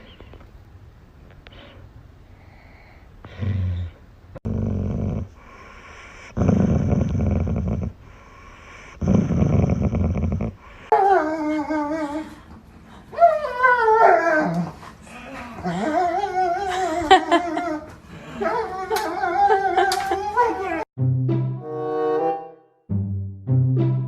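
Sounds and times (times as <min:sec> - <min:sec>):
dog growling: 0:03.3 - 0:08.0, 0:08.8 - 0:10.6
dog whining: 0:13.2 - 0:20.8.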